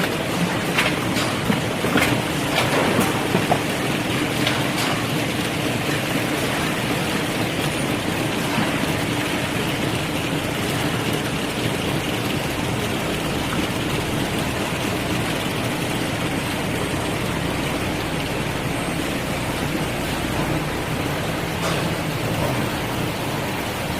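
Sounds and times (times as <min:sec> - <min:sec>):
sorting machinery running: 0:00.0 - 0:23.9.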